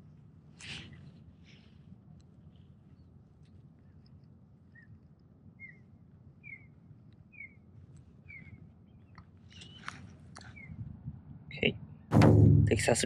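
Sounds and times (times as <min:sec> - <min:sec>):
faint bird chirping: 0:00.7 - 0:11.0.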